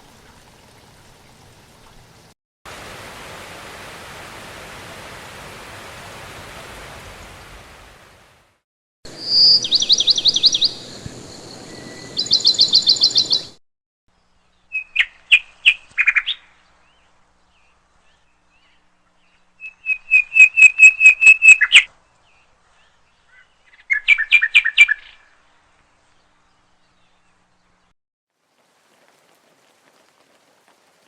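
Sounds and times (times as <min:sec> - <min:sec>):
bird chirps and trills: 0:09.1 - 0:13.6, 0:14.3 - 0:25.4.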